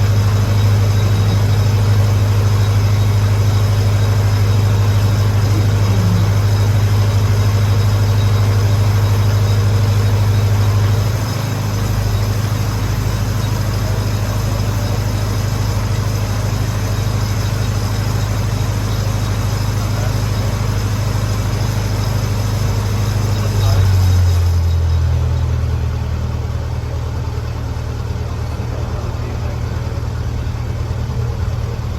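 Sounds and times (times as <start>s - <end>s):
welder gas engine humming: 0.0s - 31.9s.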